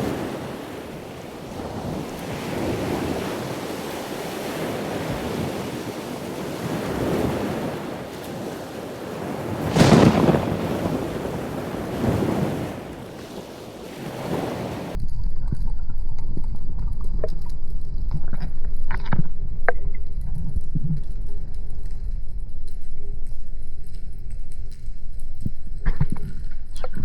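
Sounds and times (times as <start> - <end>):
waves washing: 0.0 - 15.0
wind buffeting microphone: 0.0 - 15.0
steady low rumble: 15.0 - 27.0.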